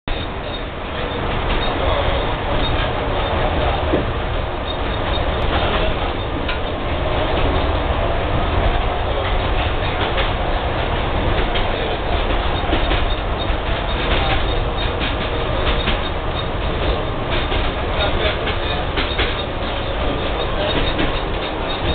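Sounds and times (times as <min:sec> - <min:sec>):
tram wheels and motors rumbling: 0:00.0 - 0:21.9
clicks from the rail: 0:11.4 - 0:19.9.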